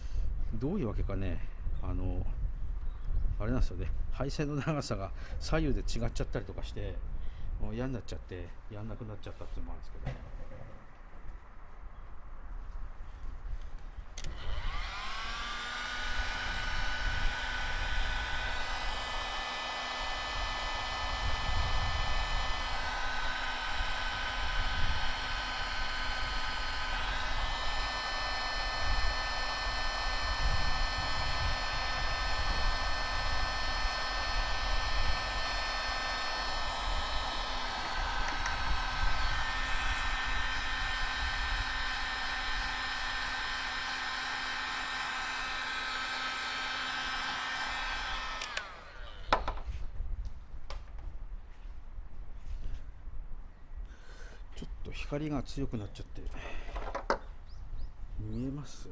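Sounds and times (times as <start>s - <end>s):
heat gun fan whine: 14.0s - 51.0s, 56.2s - 58.9s.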